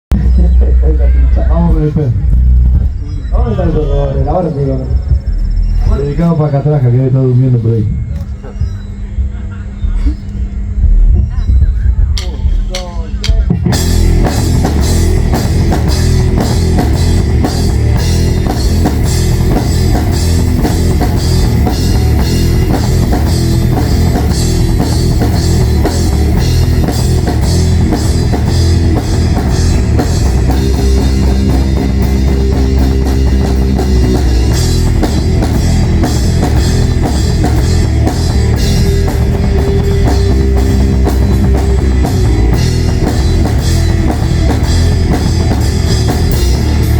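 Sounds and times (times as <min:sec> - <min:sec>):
rock band playing: 0:10.5 - 0:46.9.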